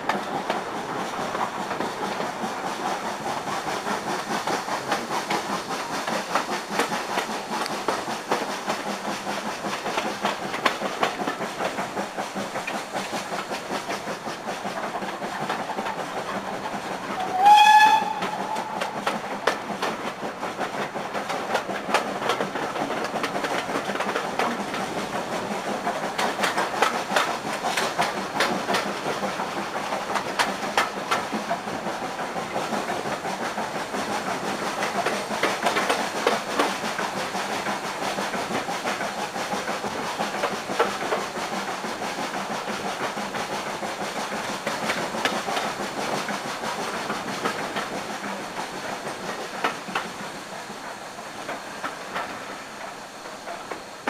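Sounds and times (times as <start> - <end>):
train rolling on rails: 0.0 - 54.0
wheels clicking over rails: 0.0 - 54.0
train whistle: 17.2 - 19.1.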